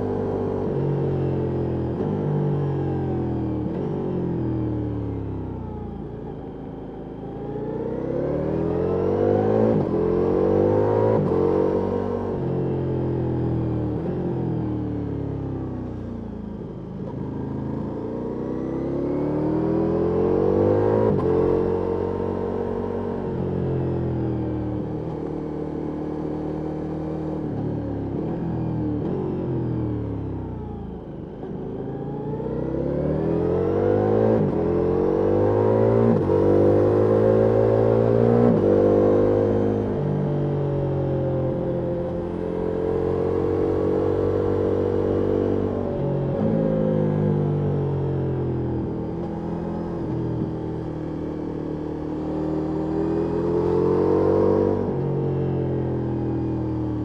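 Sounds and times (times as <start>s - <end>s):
motorcycle engine revving: 32.2s - 47.2s.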